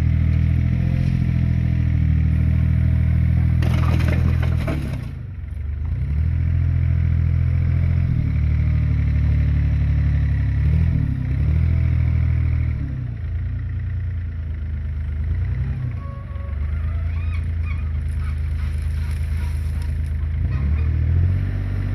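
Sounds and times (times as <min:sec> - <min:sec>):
heavy diesel engine revving: 0:15.1 - 0:21.9.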